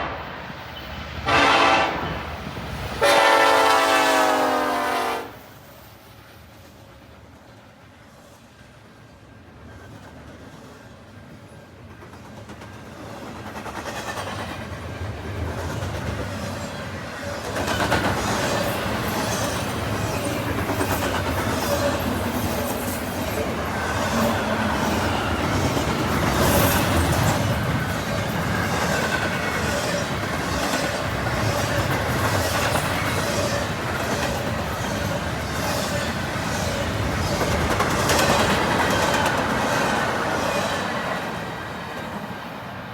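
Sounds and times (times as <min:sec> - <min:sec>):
train rumble: 0:00.0 - 0:07.3, 0:09.5 - 0:42.9
train wheels clicking over rail joints: 0:11.9 - 0:41.4.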